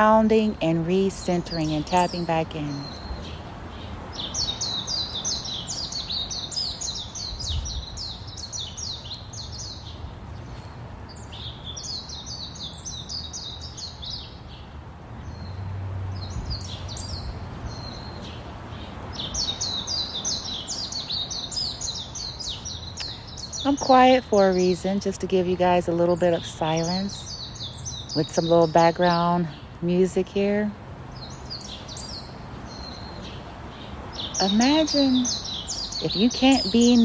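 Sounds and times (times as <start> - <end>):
songbirds chirping: 0.0 - 37.0.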